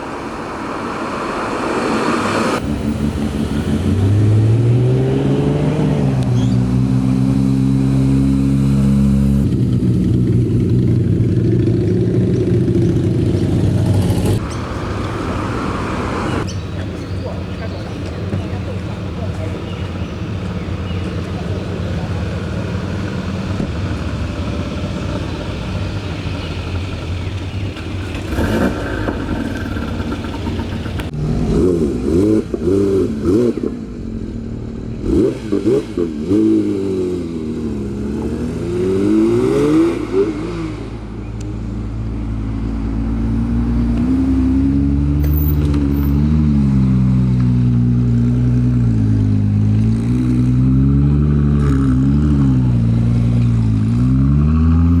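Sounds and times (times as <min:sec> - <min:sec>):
car engines passing: 0:00.0 - 0:55.0
deep engine rolling past: 0:00.0 - 0:55.0
engine revving in blips: 0:11.8 - 0:55.0.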